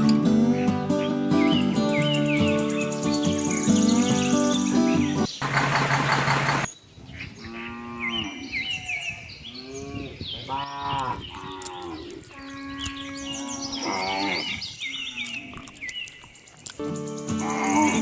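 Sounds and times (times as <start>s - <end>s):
small birds chirping: 0.0s - 18.0s
cattle mooing: 9.6s - 15.8s, 17.3s - 18.0s.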